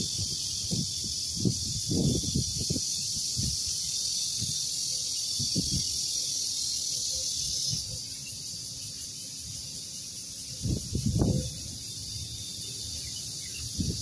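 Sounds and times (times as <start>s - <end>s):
cicadas buzzing: 0.0s - 14.0s.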